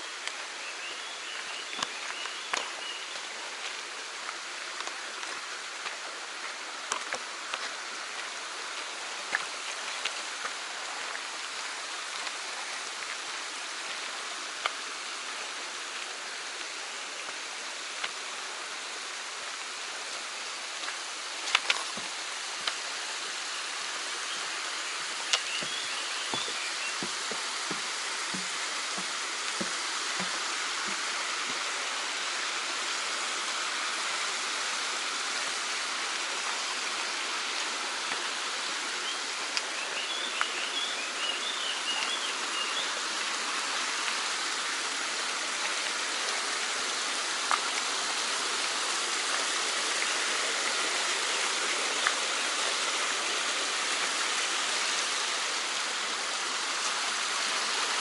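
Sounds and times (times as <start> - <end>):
stream rushing over rocks: 0.0 - 58.0
soft footsteps: 25.4 - 31.7.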